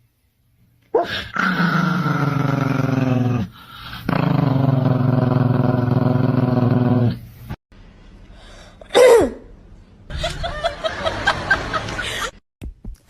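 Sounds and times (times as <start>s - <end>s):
dog growling: 1.0s - 7.2s.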